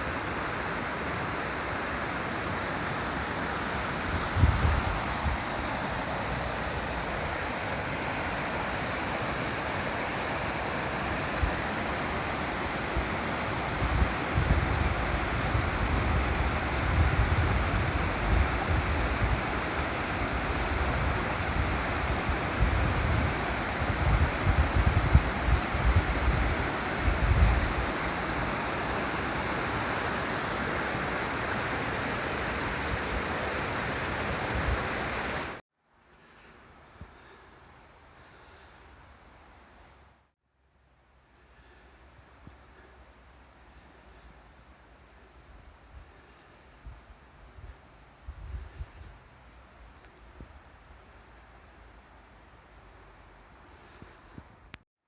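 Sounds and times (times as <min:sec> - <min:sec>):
flowing water rushing: 0:00.0 - 0:35.6
wind rumble on microphone: 0:04.1 - 0:05.8, 0:12.9 - 0:28.7, 0:45.6 - 0:50.7.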